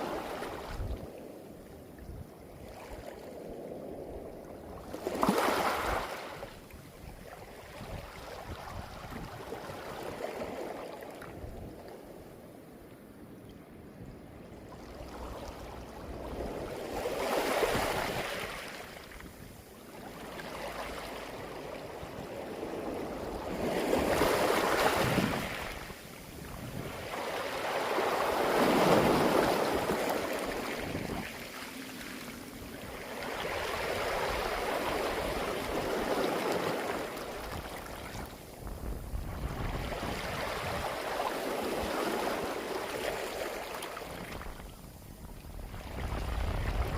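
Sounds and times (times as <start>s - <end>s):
waves rolling pebbles: 2.7s - 6.7s, 14.9s - 46.9s.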